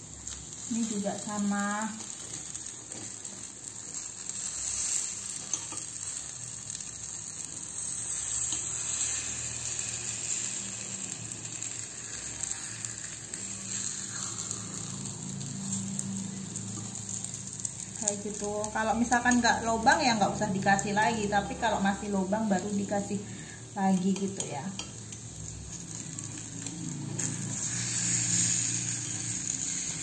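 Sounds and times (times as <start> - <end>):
batter sizzling in oil: 0.0 - 30.0
metal skewer scraping and tapping: 5.4 - 5.9, 24.0 - 25.2.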